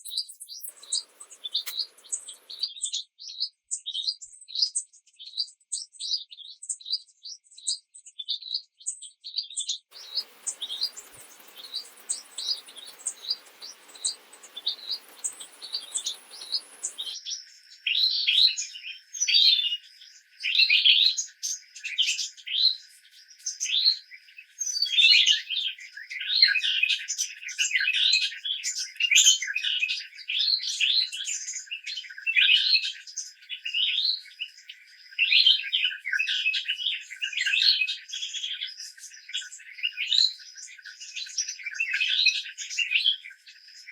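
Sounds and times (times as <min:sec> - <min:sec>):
songbirds chirping: 0:00.2 - 0:02.7, 0:09.9 - 0:17.2
soft hiss: 0:00.7 - 0:02.6, 0:10.0 - 0:17.2.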